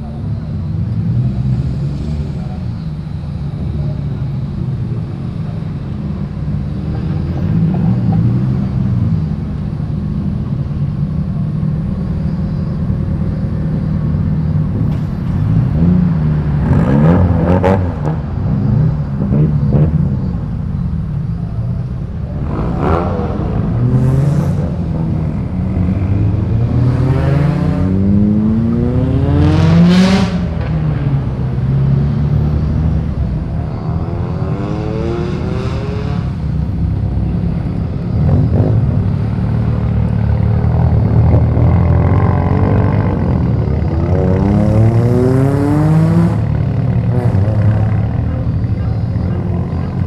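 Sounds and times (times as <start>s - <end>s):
engine idling rumble: 0.0s - 16.6s, 36.4s - 45.0s, 46.4s - 50.0s
car engines accelerating: 0.0s - 50.0s.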